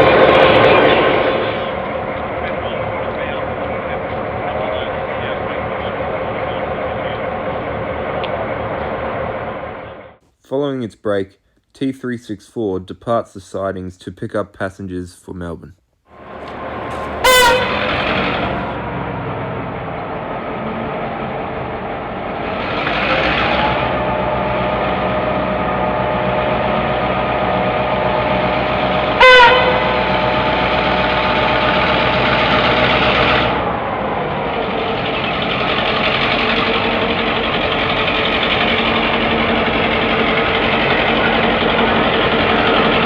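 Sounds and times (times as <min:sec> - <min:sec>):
diesel locomotive engine: 0:00.0 - 0:10.2, 0:16.2 - 0:43.0
loud locomotive horn blast: 0:16.2 - 0:18.8, 0:25.7 - 0:33.8.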